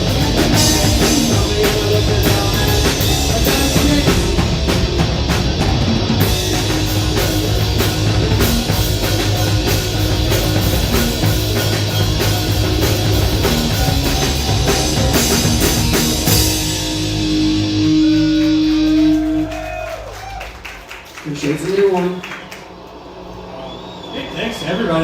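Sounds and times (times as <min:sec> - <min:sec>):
distorted electric guitar: 0:00.0 - 0:19.9
heavy rock band playing: 0:00.0 - 0:21.1
drum kit: 0:00.0 - 0:22.1.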